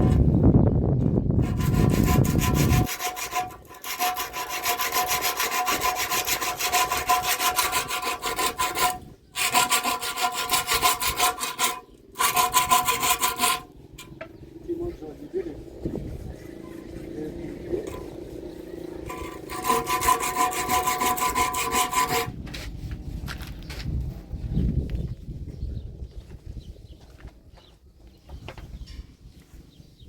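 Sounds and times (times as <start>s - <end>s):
fast rasping sawing strokes: 0.0s - 0.3s, 1.4s - 14.1s, 17.7s - 18.2s, 18.9s - 22.4s.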